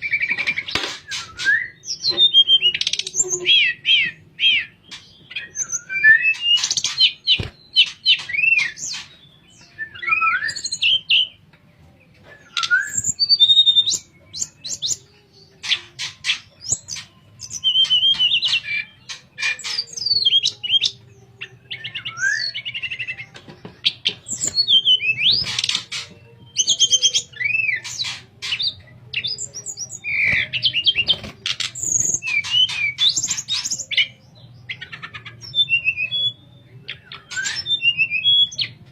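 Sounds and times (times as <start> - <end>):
songbird singing whistles and chirps: 0.0 - 38.9.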